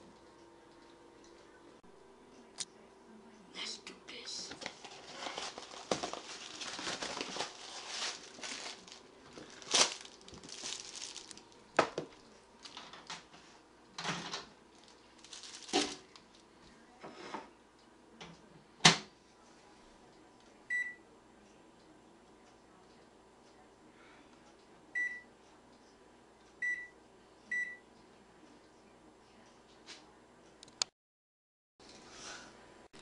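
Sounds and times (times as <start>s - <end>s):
food packaging rustling: 4.5s - 13.2s, 14.7s - 16.5s
microwave keypad beep: 20.7s - 21.0s, 25.0s - 25.3s, 26.6s - 27.8s.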